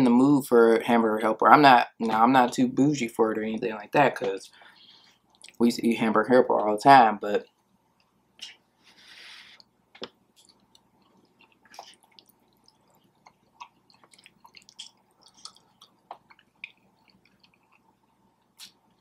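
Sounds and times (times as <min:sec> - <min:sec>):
wet chewing with mouth clicks: 0:09.5 - 0:19.0.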